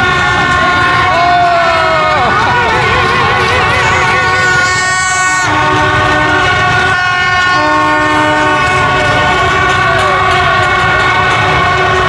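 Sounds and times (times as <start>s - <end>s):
horns blaring: 0.0s - 12.0s
low rumble of engines: 0.0s - 12.0s.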